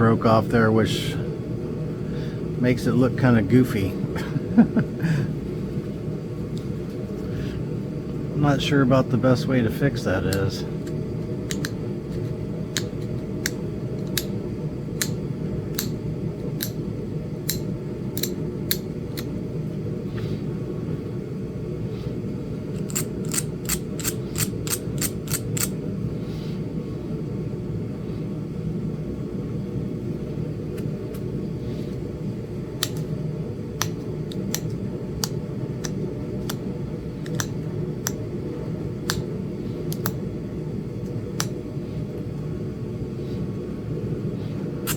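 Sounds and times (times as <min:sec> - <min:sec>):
steady low hum: 0:00.0 - 0:44.9
flintknapping clicks: 0:10.3 - 0:14.4, 0:15.0 - 0:16.0, 0:17.4 - 0:19.3, 0:22.8 - 0:25.8, 0:32.8 - 0:33.1, 0:33.8 - 0:38.2, 0:39.0 - 0:40.2, 0:41.4 - 0:41.6.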